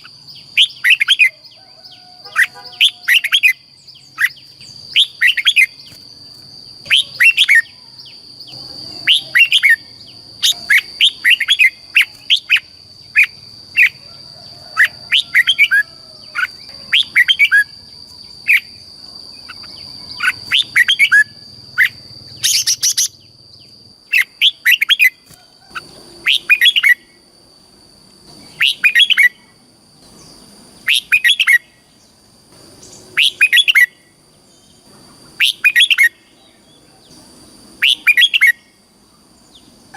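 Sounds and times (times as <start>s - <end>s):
bird singing whistled phrases: 6.8s - 14.0s, 15.1s - 17.7s, 28.5s - 29.4s, 30.9s - 31.7s, 33.1s - 34.0s, 35.4s - 36.2s, 37.8s - 38.7s.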